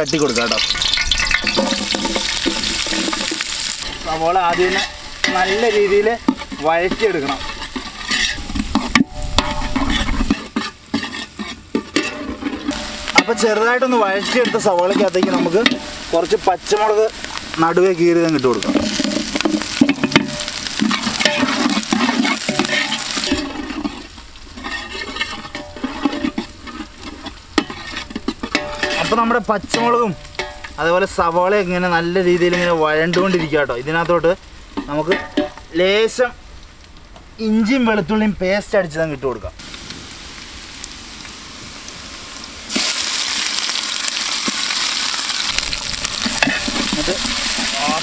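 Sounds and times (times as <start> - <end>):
onions sizzling in oil: 0.0 - 38.0, 39.6 - 48.0
steel ladle scraping a pot: 0.3 - 16.1, 18.6 - 30.8, 45.5 - 48.0.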